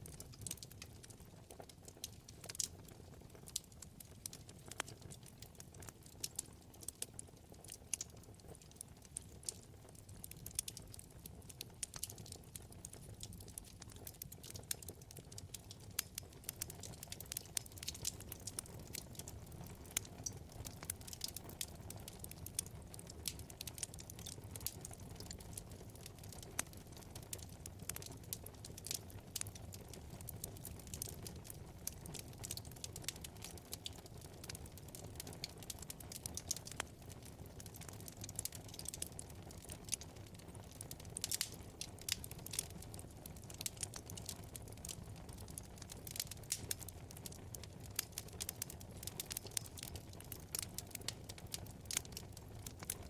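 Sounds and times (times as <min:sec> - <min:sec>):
low rumble of flames: 0:00.0 - 0:53.0
wood fire crackling and popping: 0:00.0 - 0:53.0.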